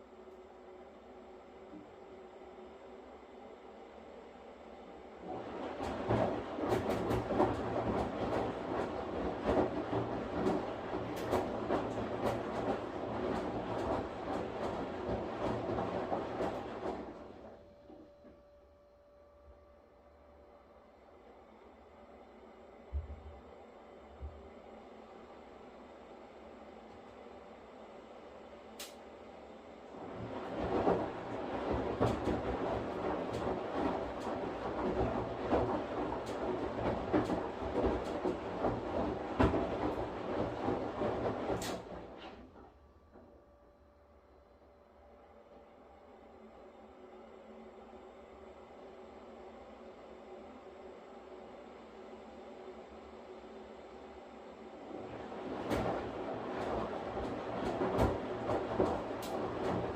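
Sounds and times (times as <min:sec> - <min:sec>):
washing machine drum humming: 0:05.1 - 0:19.6, 0:29.9 - 0:45.2, 0:54.8 - 0:59.9.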